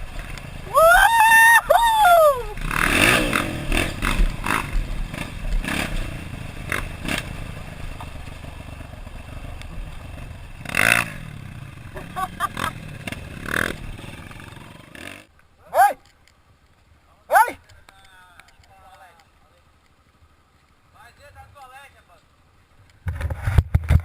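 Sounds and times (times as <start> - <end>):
dirt bike engine revving: 1.4 - 15.3.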